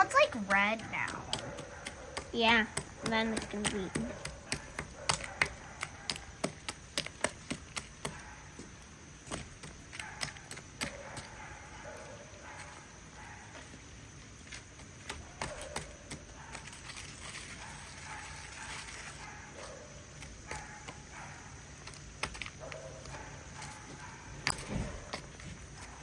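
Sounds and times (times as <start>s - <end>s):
powder being stirred and scraped: 0.0s - 11.4s, 13.4s - 26.0s.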